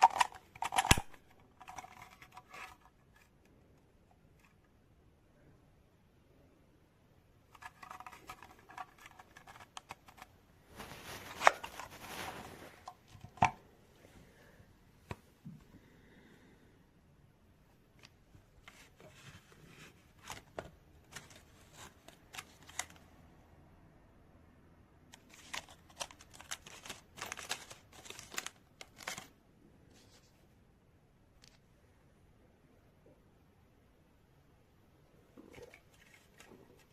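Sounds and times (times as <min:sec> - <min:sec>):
handling clicks and crinkles: 0:00.0 - 0:04.7, 0:07.5 - 0:14.2, 0:18.0 - 0:23.2, 0:25.1 - 0:29.4, 0:35.4 - 0:36.9
short rustling: 0:07.5 - 0:13.6.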